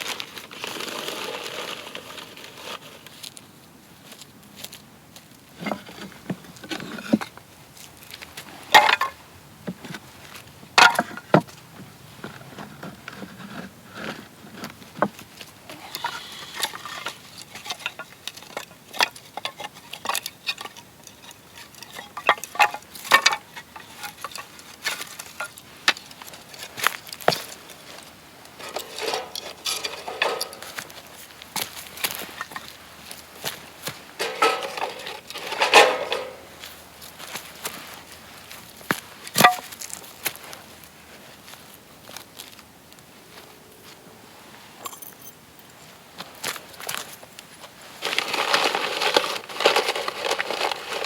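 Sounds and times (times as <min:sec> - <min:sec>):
metal parts clinking and knocking: 0:28.6 - 0:30.9, 0:34.2 - 0:36.6, 0:44.8 - 0:45.4.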